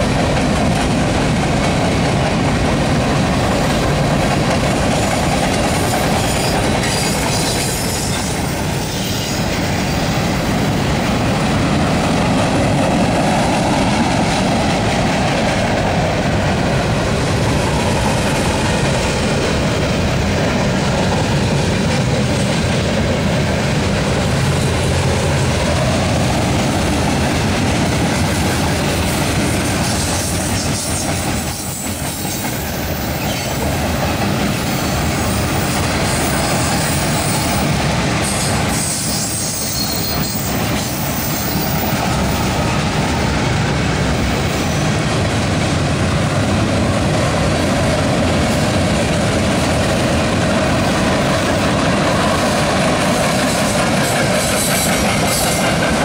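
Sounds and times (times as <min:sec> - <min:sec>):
steel wheels rumbling on rail: 0:00.0 - 0:56.0
wheels clickety-clack: 0:00.0 - 0:56.0
wheel squeal: 0:38.8 - 0:41.7.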